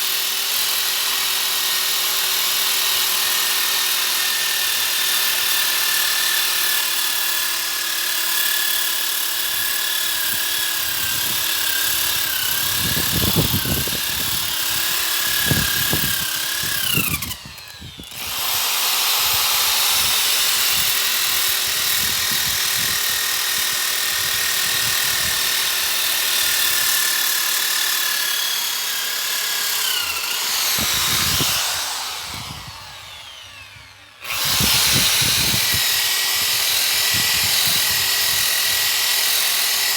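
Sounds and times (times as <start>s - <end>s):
power sander motor whine: 9.5s - 39.9s.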